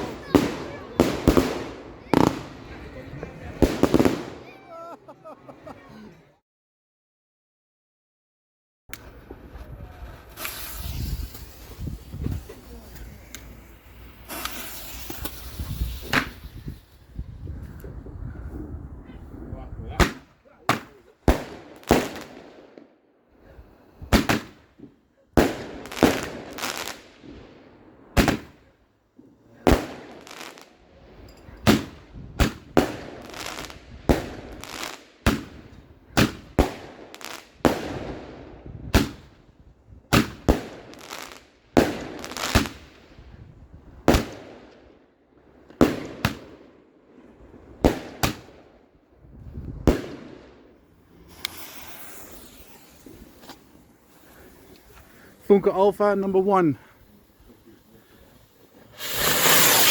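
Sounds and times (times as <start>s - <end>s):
fireworks bangs echoing: 0.0s - 4.9s, 9.1s - 17.1s, 20.0s - 22.9s, 24.0s - 28.6s, 29.6s - 30.7s, 31.6s - 39.4s, 40.1s - 43.2s, 44.0s - 45.0s, 45.7s - 46.8s, 47.8s - 56.8s, 58.8s - 59.9s.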